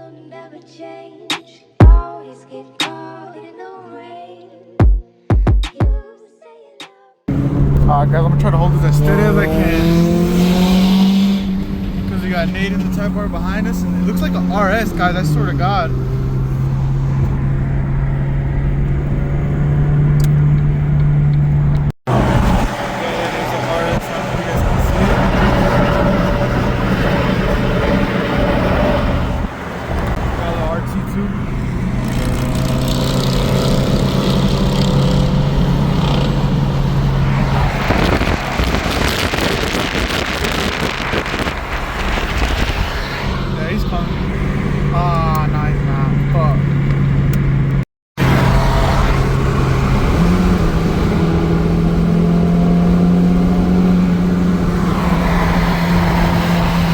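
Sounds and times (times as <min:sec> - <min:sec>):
loud rushing noise: 0:07.3 - 0:18.3, 0:22.1 - 0:45.0
engine drone inside car: 0:07.3 - 0:56.9
road noise: 0:07.3 - 0:56.9.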